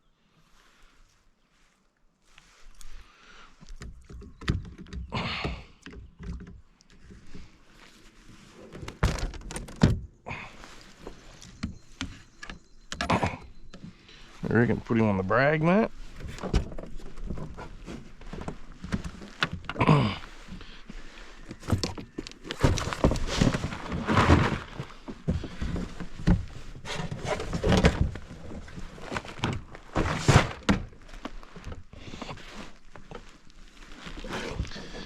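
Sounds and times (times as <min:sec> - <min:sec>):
thumps and knocks in a kayak: 0:03.6 - 0:07.7, 0:08.6 - 0:10.2, 0:15.7 - 0:35.0.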